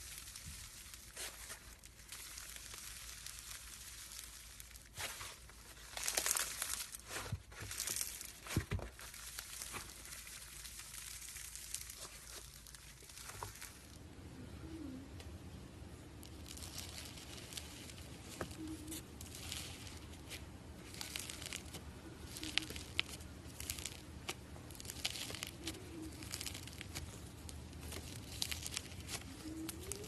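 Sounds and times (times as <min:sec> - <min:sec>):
crinkling handling noises: 0:00.0 - 0:30.0.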